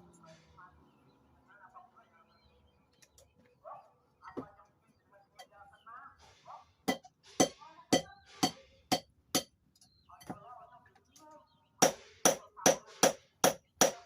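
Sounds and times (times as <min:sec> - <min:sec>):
hammer striking steel on anvil: 0:06.9 - 0:09.5, 0:11.8 - 0:14.0.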